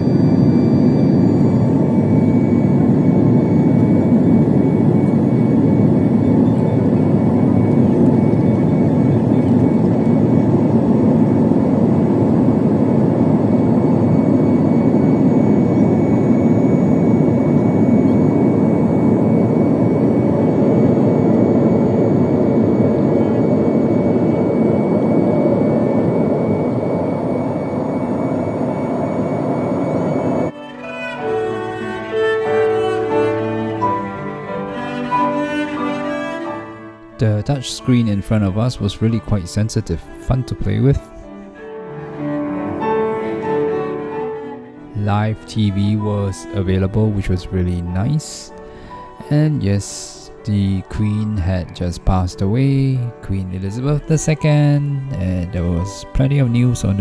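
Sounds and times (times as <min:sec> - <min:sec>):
jet engines from inside cabin: 0:00.0 - 0:30.6, 0:31.2 - 0:41.2.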